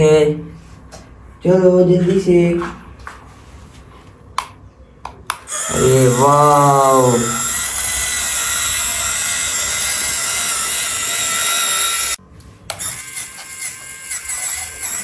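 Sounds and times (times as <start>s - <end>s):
uneven mechanical whirring: 5.4s - 15.0s
toy electric motor whining: 5.5s - 15.0s.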